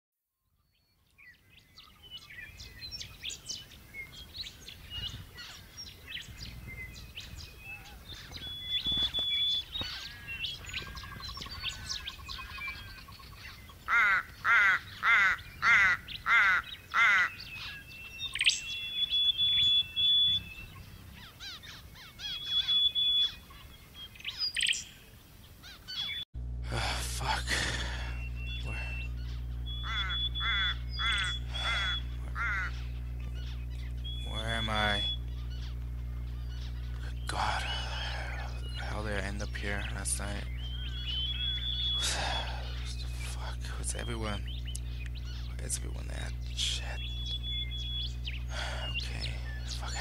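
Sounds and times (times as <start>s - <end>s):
songbirds chirping and whistling: 0.5s - 50.0s
bird repeating loud notes: 27.2s - 35.8s.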